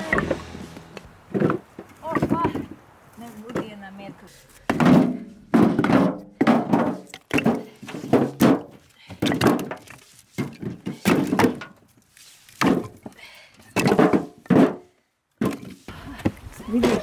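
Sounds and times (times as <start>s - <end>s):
heavy wooden thunks: 0.0s - 2.8s, 4.7s - 11.7s.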